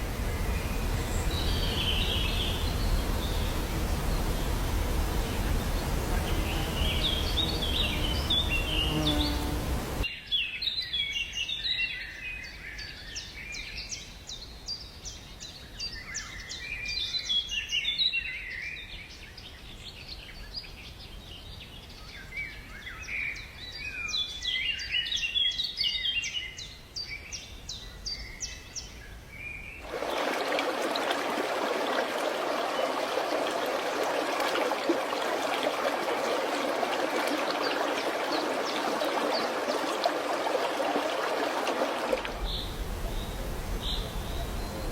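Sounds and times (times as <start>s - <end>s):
stream rushing: 0.0s - 10.1s, 29.8s - 44.9s.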